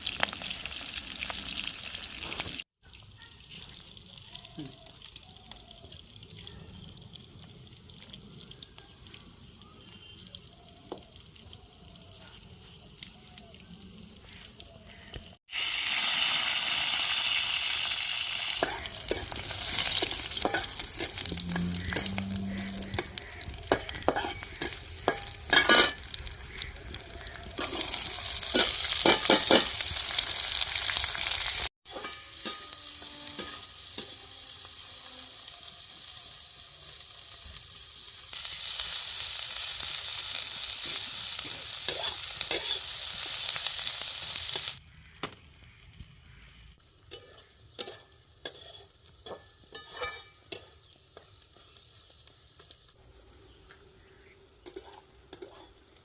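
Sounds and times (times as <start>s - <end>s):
food sizzling in a pan: 0.0s - 44.8s, 46.2s - 56.0s
utensil scraping and clinking on pan: 18.6s - 26.6s, 27.6s - 29.8s, 31.9s - 34.3s, 47.1s - 51.4s, 54.6s - 55.8s.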